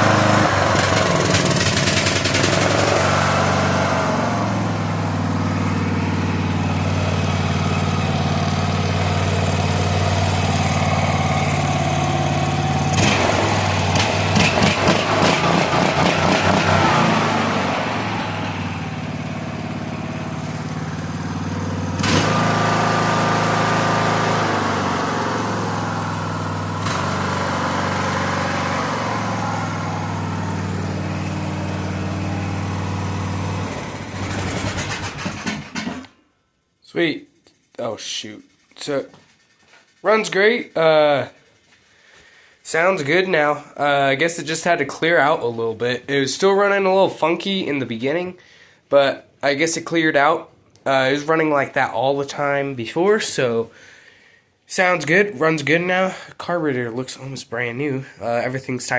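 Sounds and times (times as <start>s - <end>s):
lawn tractor engine running: 0.0s - 36.2s, 37.6s - 42.2s
person talking: 36.8s - 39.2s, 40.0s - 41.4s, 42.7s - 53.7s, 54.7s - 58.9s.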